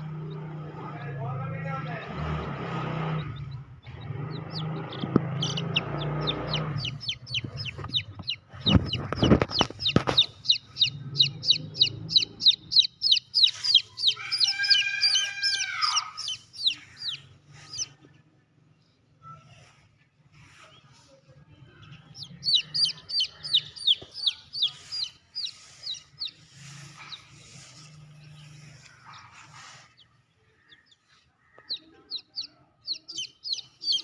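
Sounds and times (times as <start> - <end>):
high downward-slurred bird calls: 0.0 - 18.0, 21.9 - 34.0
long lower bird call: 9.6 - 17.9.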